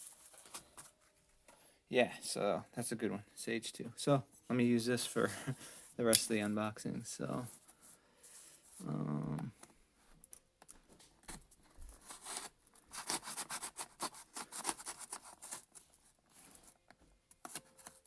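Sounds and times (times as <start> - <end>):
knife cutting through packaging: 12.0 - 15.8.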